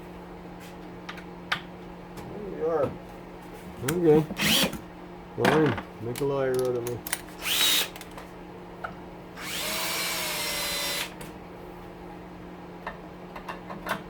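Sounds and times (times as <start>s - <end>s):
cordless drill spinning: 4.4s - 4.7s, 7.4s - 8.0s, 9.4s - 11.2s
light metal clicks: 6.1s - 7.3s.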